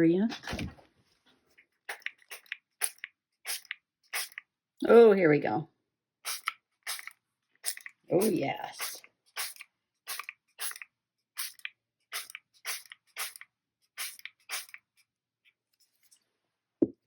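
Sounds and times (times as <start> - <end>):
spray bottle squirts: 1.9 - 4.4, 6.2 - 14.9.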